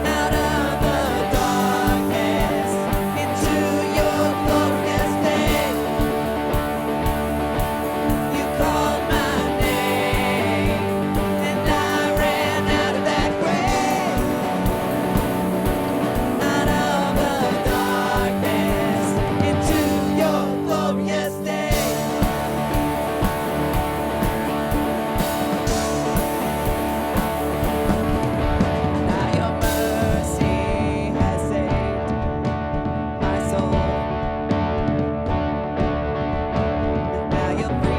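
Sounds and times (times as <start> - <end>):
singing: 0.0 - 6.8, 7.8 - 22.4, 29.0 - 32.3
drum beat: 0.0 - 36.0
worship band music: 0.0 - 37.9.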